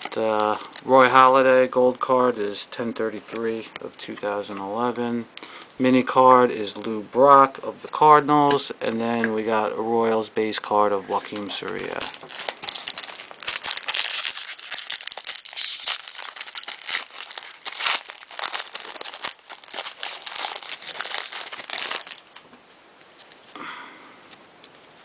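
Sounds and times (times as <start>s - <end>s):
plastic wrapper crinkling and tearing: 0.0s - 1.4s, 11.3s - 23.5s.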